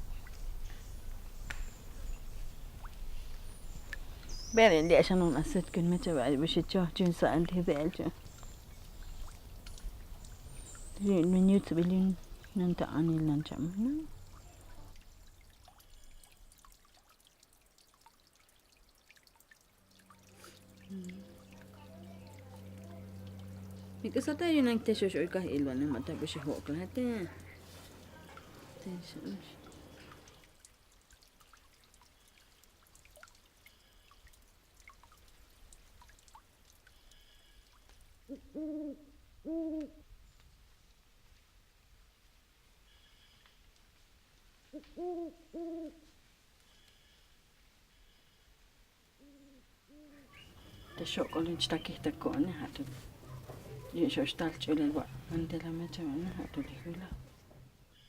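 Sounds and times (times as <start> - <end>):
faint ticks: 0.2 - 3.0, 6.9 - 12.9
small ticks: 8.1 - 11.1, 29.7 - 38.1
owl hooting: 38.3 - 40.0, 44.7 - 46.0.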